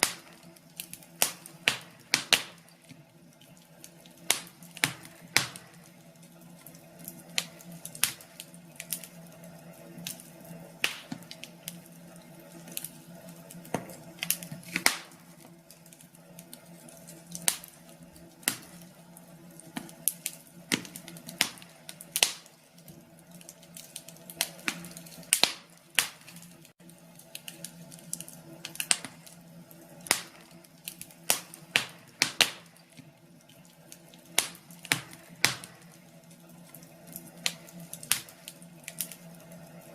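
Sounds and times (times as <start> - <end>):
faint steady hum: 0.0 - 39.9
wood fire crackling: 0.0 - 39.9.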